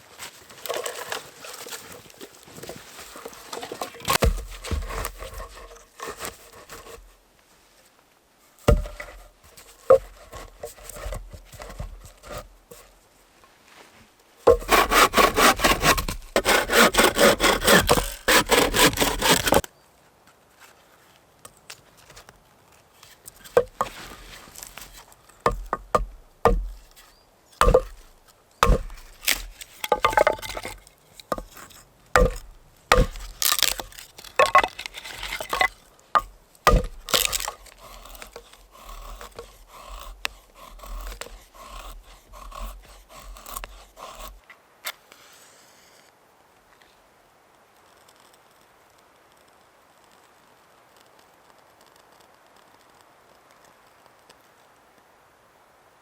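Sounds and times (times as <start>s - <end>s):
blade scraping wood: 0.5s - 7.2s, 8.7s - 12.9s, 14.5s - 19.7s, 23.0s - 44.4s
knocks and cracks on wood: 25.5s - 26.9s, 27.6s - 42.7s.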